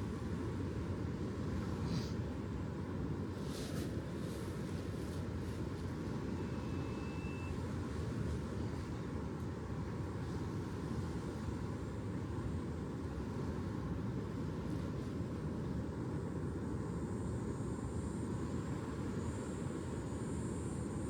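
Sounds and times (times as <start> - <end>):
faint high whistle-like tone: 6.2 - 7.8.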